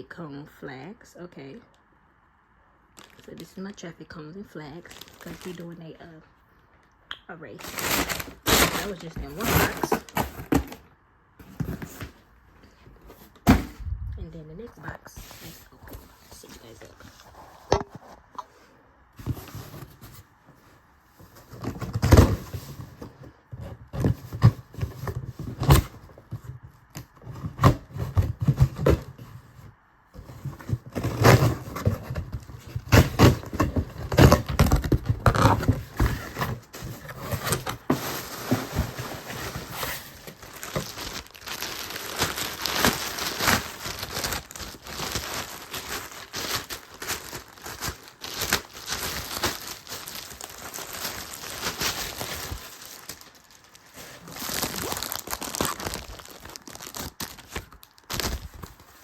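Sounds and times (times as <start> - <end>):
packing paper crinkling: 2.9 - 3.6, 4.8 - 6.2, 7.5 - 10.8, 30.2 - 59.0
cardboard tearing and scraping: 4.9 - 5.6, 7.5 - 10.8, 21.3 - 29.5, 30.2 - 59.0.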